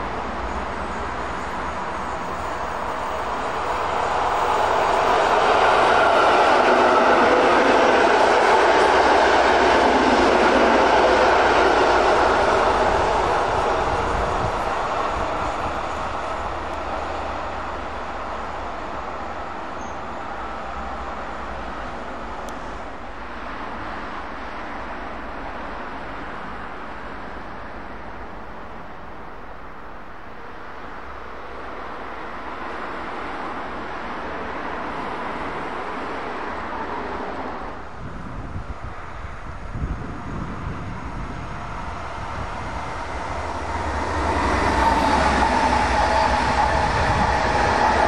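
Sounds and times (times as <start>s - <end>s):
distant train rumble: 0.0s - 48.0s
electric train passing: 0.0s - 48.0s.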